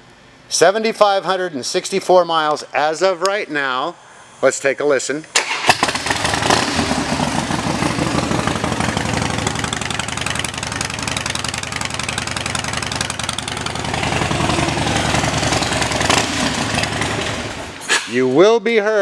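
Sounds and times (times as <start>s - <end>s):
motorcycle engine idling: 6.0s - 17.8s.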